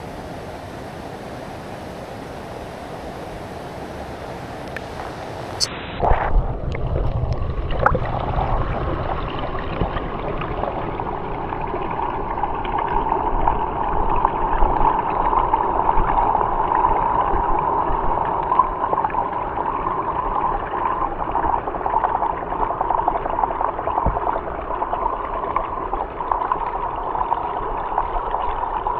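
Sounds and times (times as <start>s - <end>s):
underwater rushing gurgle: 0.0s - 28.9s
sharp clicks and splashes: 4.6s - 19.6s.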